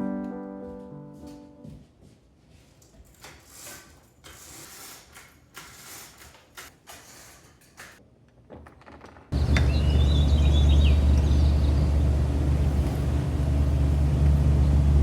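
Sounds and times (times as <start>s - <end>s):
kitchen utensils rustling and clattering: 2.8s - 8.0s.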